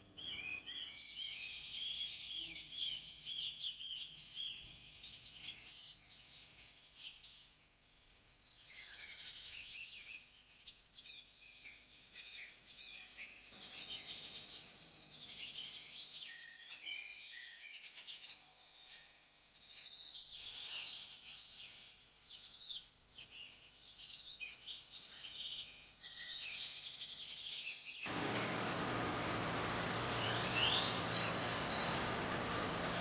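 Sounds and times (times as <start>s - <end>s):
birds chirping: 28.1s - 33.0s.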